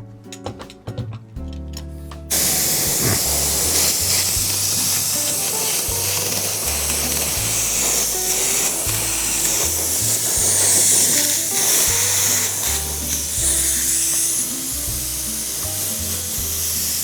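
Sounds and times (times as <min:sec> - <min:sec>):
spray adhesive hissing: 0:02.3 - 0:17.0.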